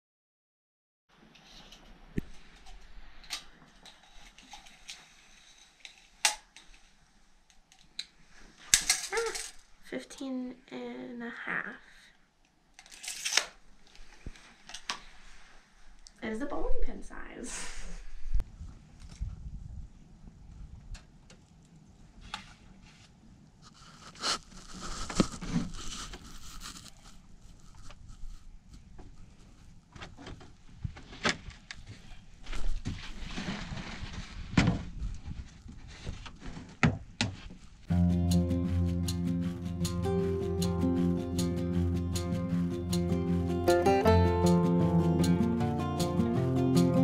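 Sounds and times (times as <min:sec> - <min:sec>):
scraping and rustling: 0:22.2 - 0:37.9.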